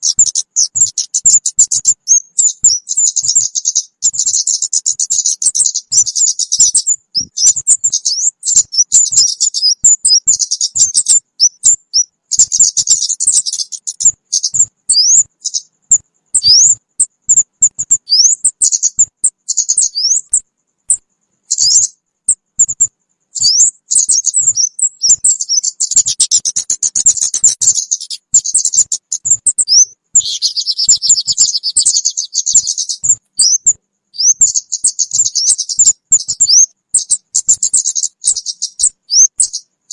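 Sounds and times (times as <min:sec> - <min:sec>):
high-pitched bird chirps and whistles: 0:00.0 - 0:39.9
harsh buzzing bird call: 0:23.4 - 0:33.6.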